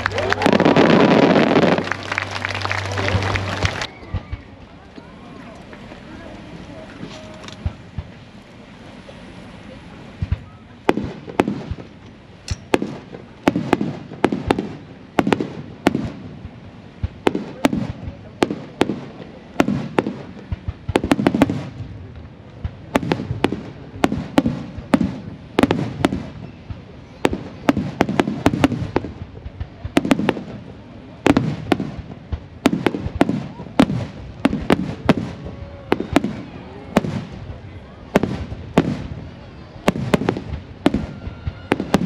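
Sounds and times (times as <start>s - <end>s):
fireworks bursting: 0.0s - 42.0s.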